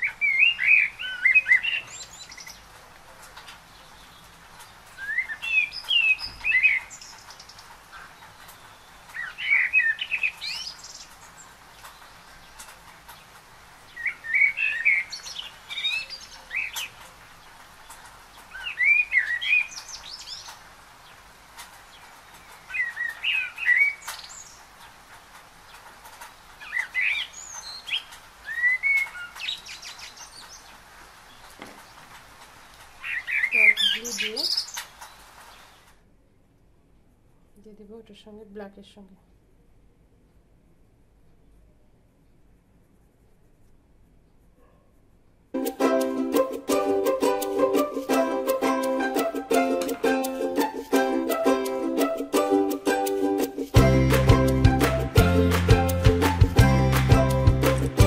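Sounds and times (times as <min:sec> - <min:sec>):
songbird warbling: 0:00.0 - 0:02.7, 0:05.0 - 0:12.1, 0:13.9 - 0:17.0, 0:33.0 - 0:35.8.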